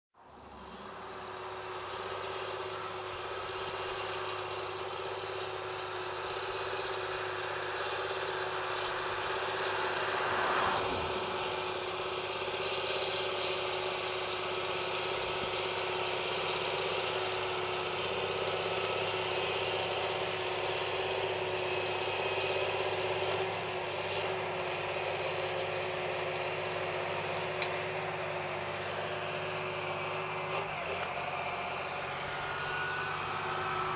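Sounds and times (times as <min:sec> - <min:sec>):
tractor diesel engine running: 0:00.3 - 0:33.9.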